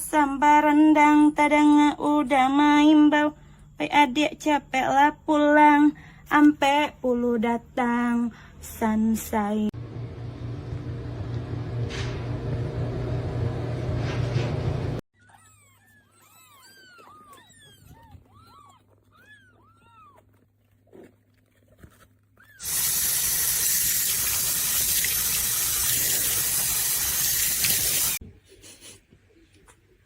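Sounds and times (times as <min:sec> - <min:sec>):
running water rushing: 0:22.7 - 0:28.2.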